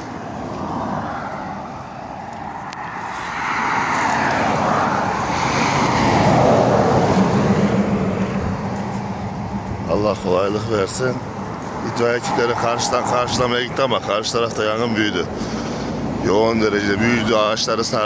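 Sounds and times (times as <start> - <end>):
aircraft flying past: 0.0 - 13.5
low engine hum: 0.0 - 18.0.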